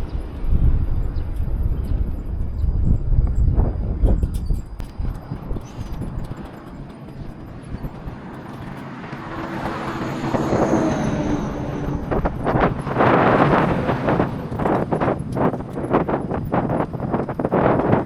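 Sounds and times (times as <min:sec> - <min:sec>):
vehicle approaching: 0:03.6 - 0:18.0.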